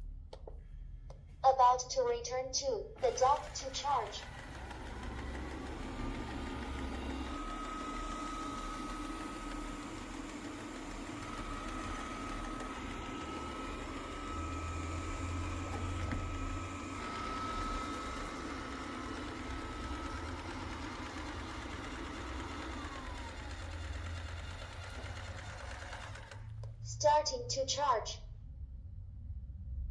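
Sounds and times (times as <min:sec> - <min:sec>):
robot vacuum motor whine: 0:03.0 - 0:26.5.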